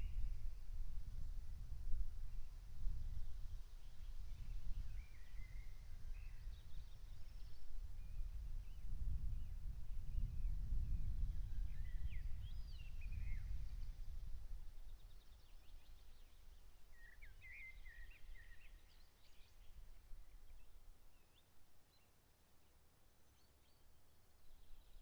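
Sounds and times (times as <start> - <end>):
birds singing: 14.8 - 21.5.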